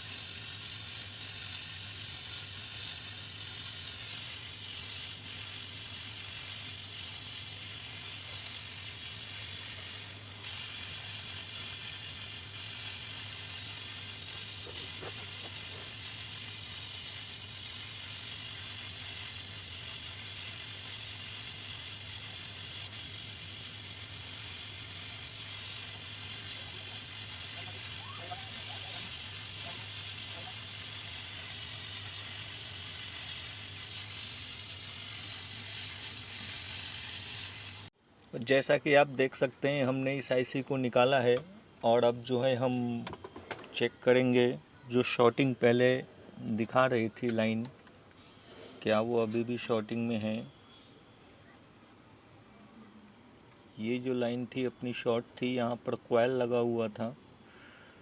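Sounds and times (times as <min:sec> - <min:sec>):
hot-air station hissing: 0:00.0 - 0:41.1.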